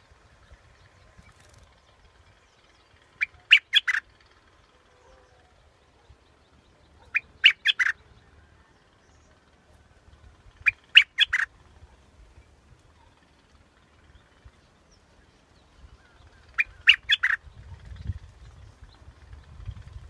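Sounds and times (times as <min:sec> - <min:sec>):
bulbul singing: 0:03.1 - 0:04.1, 0:06.1 - 0:08.3, 0:10.6 - 0:11.5, 0:15.6 - 0:17.6.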